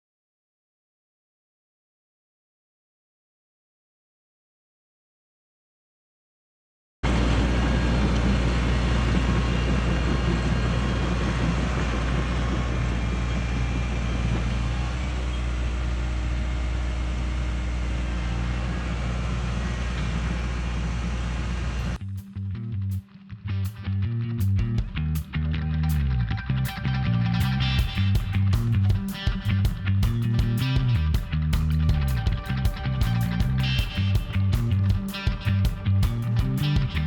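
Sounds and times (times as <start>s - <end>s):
excavator diesel engine running: 7.0s - 22.0s
guitar music: 22.0s - 37.0s.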